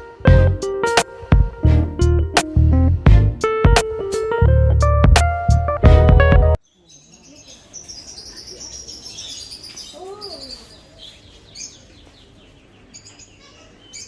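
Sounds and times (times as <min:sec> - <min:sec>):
small birds chirping and twittering: 0:06.6 - 0:14.0.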